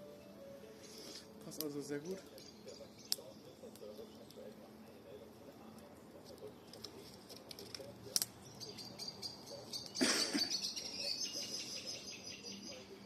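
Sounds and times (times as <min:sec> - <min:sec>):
steady high hiss: 0:00.0 - 0:07.3
campfire crackling and popping: 0:00.8 - 0:13.0.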